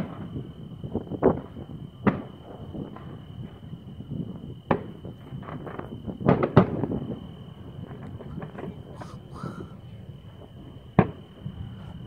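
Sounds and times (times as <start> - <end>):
distant fireworks banging: 0.0 - 12.0.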